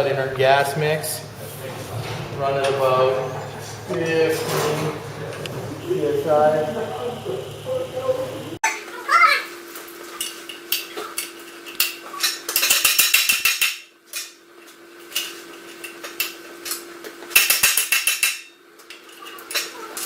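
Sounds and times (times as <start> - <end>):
rapid clattering metal strikes: 0.0 - 7.7
metal knocks: 0.0 - 8.6.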